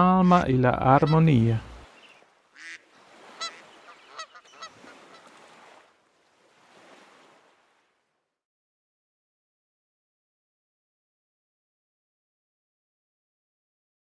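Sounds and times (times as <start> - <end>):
waterfowl honking: 0.0 - 5.6
soft wash of water: 1.2 - 8.3.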